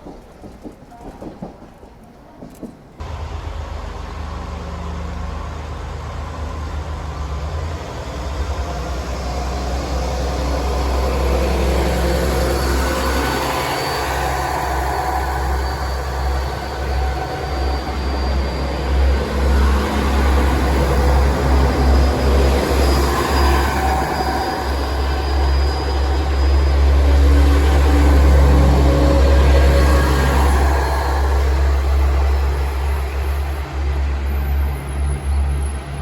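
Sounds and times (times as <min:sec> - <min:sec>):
large vehicle engine rumbling: 0:03.0 - 0:36.0.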